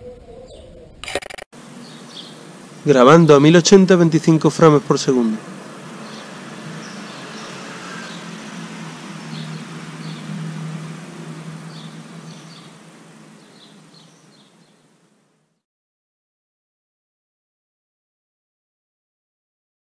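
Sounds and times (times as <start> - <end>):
steady low hum and hiss: 1.6 - 7.0, 10.8 - 15.6
small birds chirping: 1.6 - 15.6.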